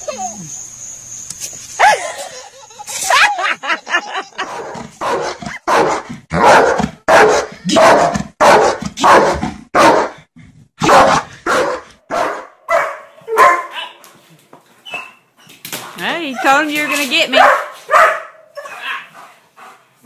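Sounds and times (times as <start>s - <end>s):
dog barking: 4.4s - 10.2s, 10.8s - 14.0s, 16.2s - 19.3s.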